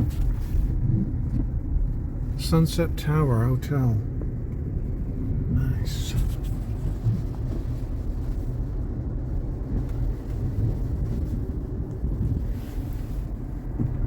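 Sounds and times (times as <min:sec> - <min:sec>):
tyres on wet road: 0:00.0 - 0:14.0.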